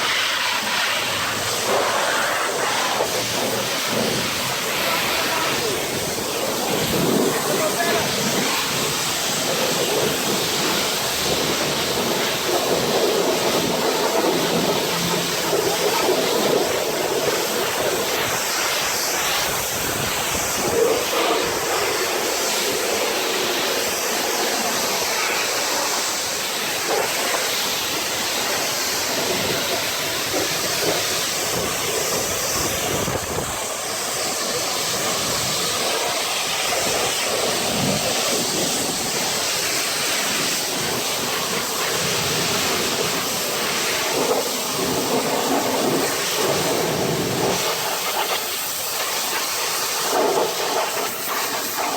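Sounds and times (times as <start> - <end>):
pressure washer spraying foam: 0.0 - 51.9.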